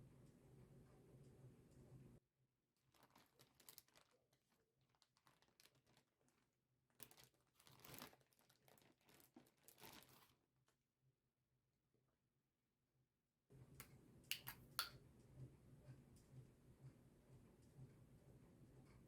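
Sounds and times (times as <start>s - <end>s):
faint crinkling and rustling: 2.8s - 10.8s.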